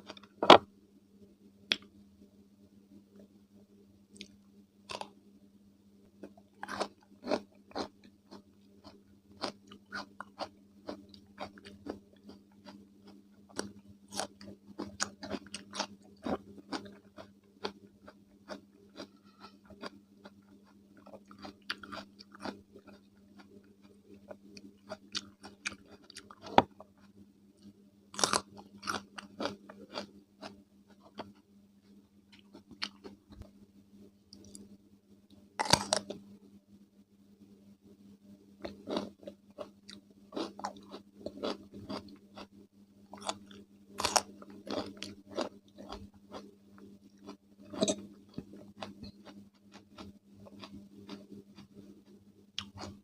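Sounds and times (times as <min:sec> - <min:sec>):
faint low hum: 0:00.0 - 0:53.0
cucumber crunching: 0:04.9 - 0:05.1, 0:28.2 - 0:30.1, 0:35.6 - 0:36.2, 0:38.6 - 0:42.5, 0:43.2 - 0:46.4.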